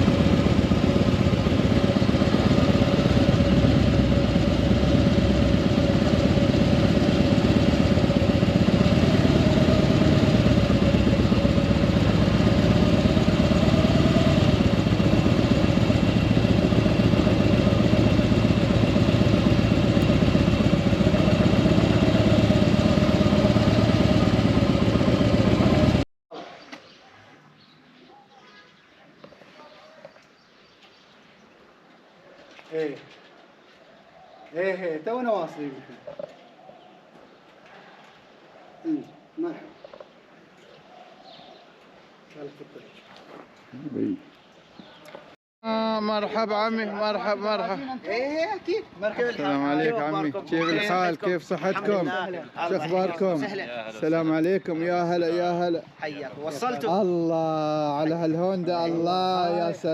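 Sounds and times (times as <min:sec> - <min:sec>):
motorcycle engine running: 0:00.0 - 0:26.1.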